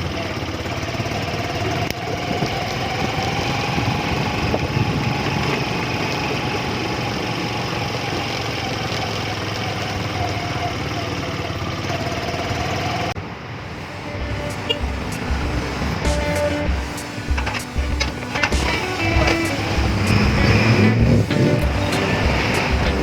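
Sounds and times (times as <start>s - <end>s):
wind and road noise: 0.0s - 23.0s
motorcycle engine running: 13.7s - 23.0s.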